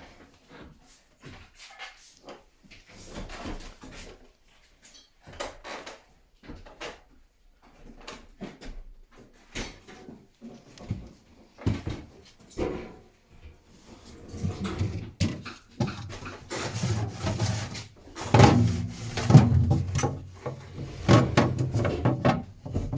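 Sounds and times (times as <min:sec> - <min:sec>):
refrigerator doors and drawers rattling: 0:14.2 - 0:22.9.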